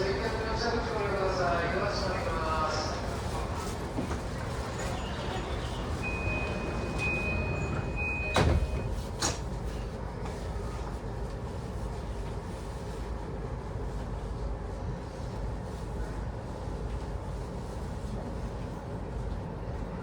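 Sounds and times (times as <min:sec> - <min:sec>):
electric train humming: 0:00.0 - 0:09.3
high warning tone: 0:04.8 - 0:08.9
sliding doors shutting thump: 0:06.1 - 0:09.4.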